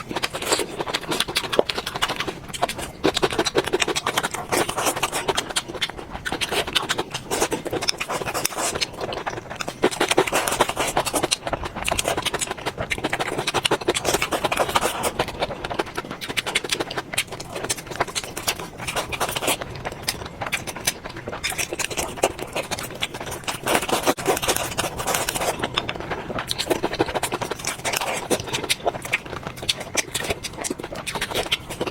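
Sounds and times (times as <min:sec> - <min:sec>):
crunching and chewing: 0:00.0 - 0:31.9.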